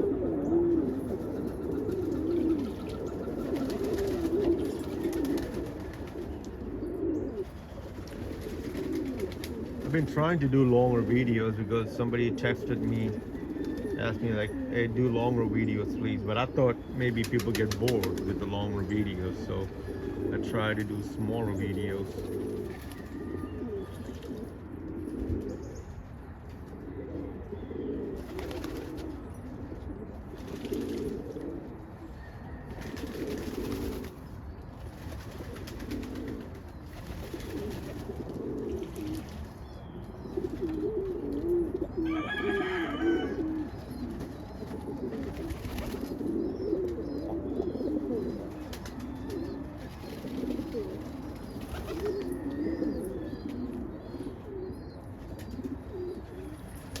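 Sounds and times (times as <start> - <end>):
pigeons cooing: 0.0 - 57.0.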